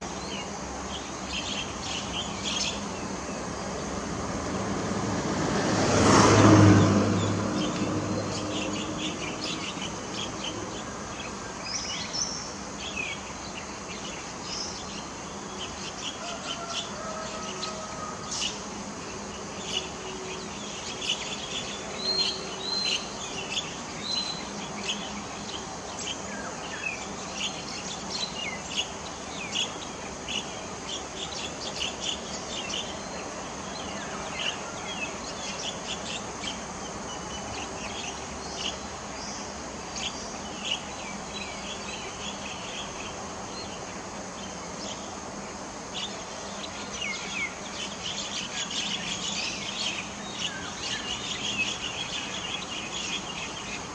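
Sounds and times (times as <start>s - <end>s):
small birds chirping: 0.0s - 3.9s, 7.2s - 53.9s
vehicle passing: 3.8s - 10.6s.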